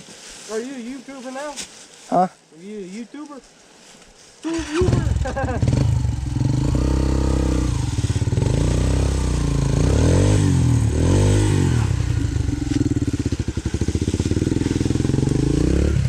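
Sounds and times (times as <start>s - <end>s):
dirt bike engine revving: 4.5s - 16.0s.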